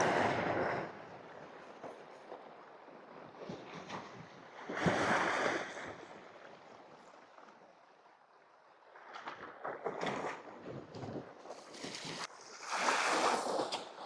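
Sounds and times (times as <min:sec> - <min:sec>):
sea waves washing against rocks: 0:00.0 - 0:06.4.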